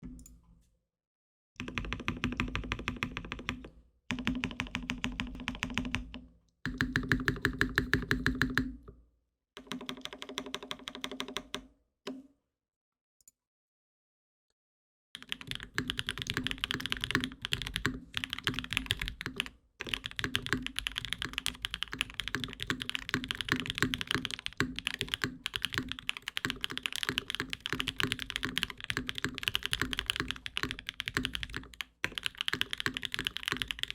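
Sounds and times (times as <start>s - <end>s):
mechanical keyboard typing: 1.6s - 6.1s, 9.6s - 11.6s, 15.2s - 33.9s.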